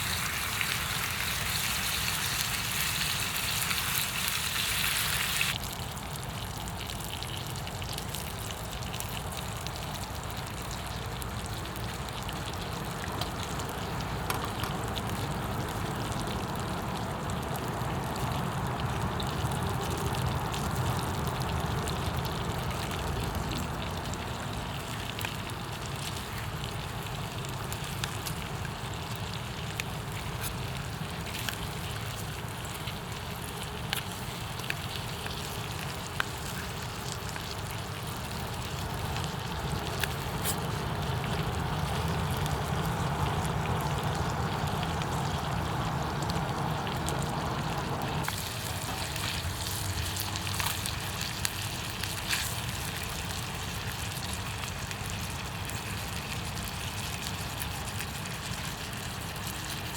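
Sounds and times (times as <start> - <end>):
campfire crackling and popping: 6.4 - 59.9.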